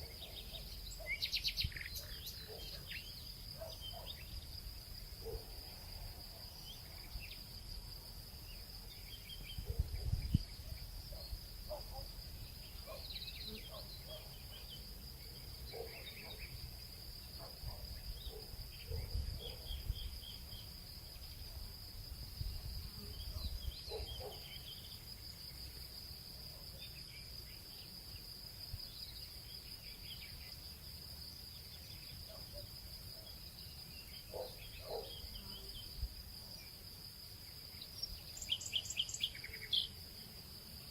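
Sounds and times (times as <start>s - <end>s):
bird chirps: 0.0s - 4.3s, 38.0s - 40.0s
insects droning: 0.0s - 40.9s.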